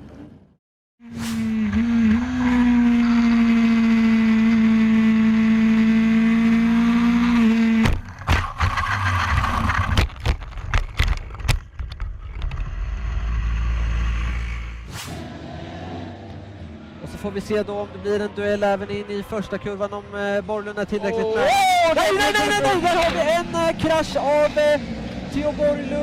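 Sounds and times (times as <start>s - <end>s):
racing motorcycle engine revving: 1.0s - 9.9s, 12.9s - 20.8s, 22.0s - 26.0s
motorcycle crashing and sliding: 7.6s - 16.1s.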